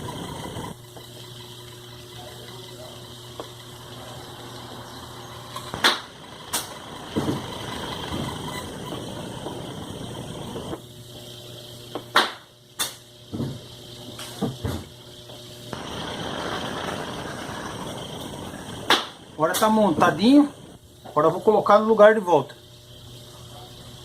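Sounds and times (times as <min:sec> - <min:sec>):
rushing noise: 0:15.7 - 0:20.8.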